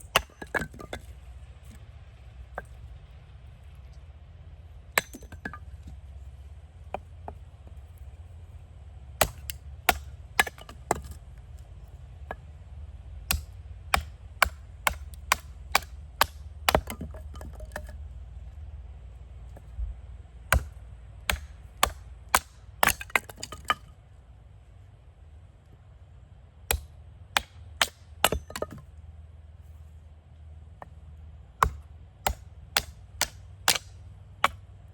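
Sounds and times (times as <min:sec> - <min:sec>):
chopping strikes on wood: 0:09.2 - 0:11.2, 0:13.3 - 0:17.9, 0:20.5 - 0:23.8, 0:26.7 - 0:28.8, 0:31.6 - 0:34.6.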